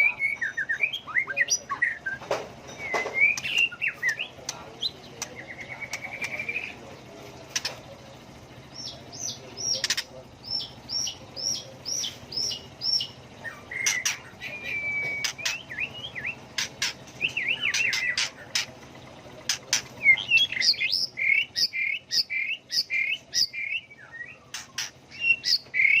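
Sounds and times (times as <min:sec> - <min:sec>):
bird whistling song: 0:00.0 - 0:04.4, 0:05.2 - 0:06.8, 0:08.7 - 0:18.7, 0:19.5 - 0:26.0
bird sharp clicks: 0:19.4 - 0:20.4.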